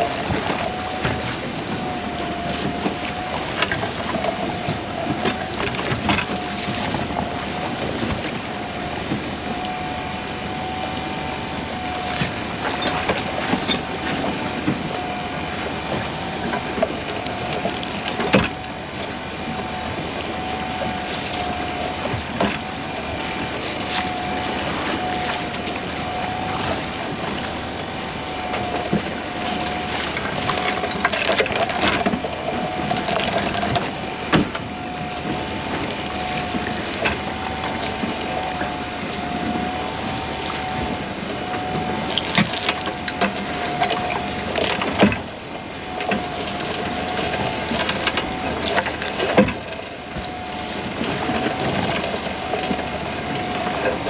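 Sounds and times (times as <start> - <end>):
boat machinery whining: 0.0 - 54.0
knocks and clatter of gear: 29.7 - 34.6, 46.0 - 50.3.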